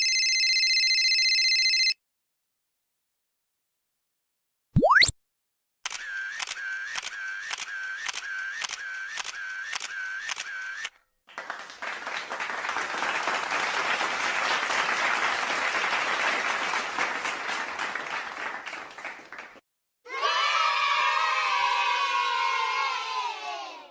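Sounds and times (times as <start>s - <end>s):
evenly spaced clicks: 5.9s - 10.9s
applause: 11.3s - 19.6s.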